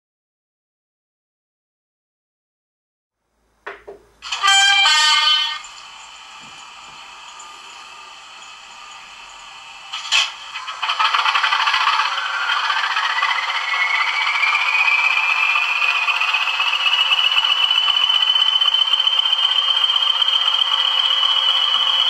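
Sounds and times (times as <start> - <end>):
diesel engine start-up with whine: 5.0 - 22.0.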